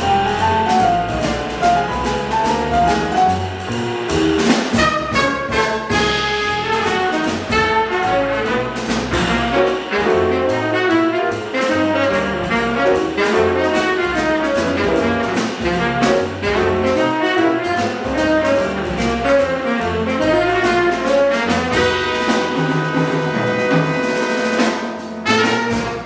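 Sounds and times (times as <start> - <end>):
bebop jazz quintet playing: 0.0 - 26.0
trumpet: 4.7 - 26.0
tenor saxophone: 21.7 - 26.0.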